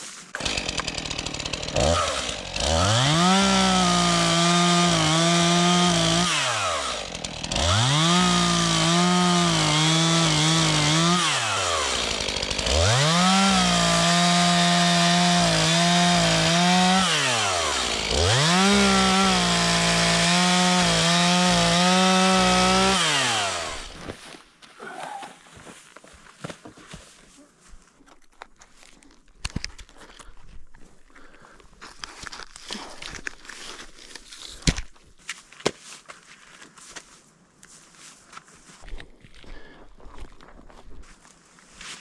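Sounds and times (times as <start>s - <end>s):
chainsaw revving: 0.4s - 24.0s.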